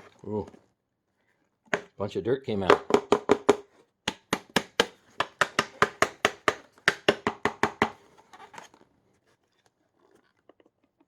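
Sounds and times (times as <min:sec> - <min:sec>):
dust cup knocked against hard surface: 0:02.7 - 0:08.0.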